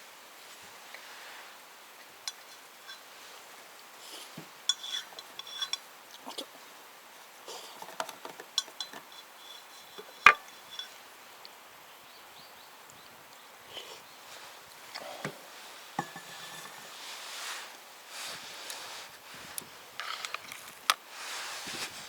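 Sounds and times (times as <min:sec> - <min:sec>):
dishes and utensils clinking: 0:07.6 - 0:11.0, 0:15.9 - 0:17.2.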